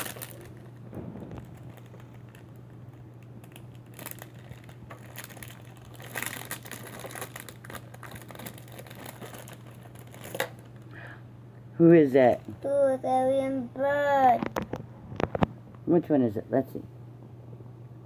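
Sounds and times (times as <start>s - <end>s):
plastic bag crinkling and tearing: 0.0s - 10.8s
low hum: 0.0s - 12.8s.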